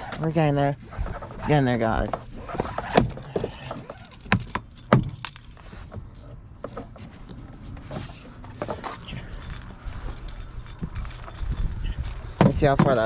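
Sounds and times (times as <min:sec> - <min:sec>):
light clicks and clinks: 0:09.0 - 0:13.0.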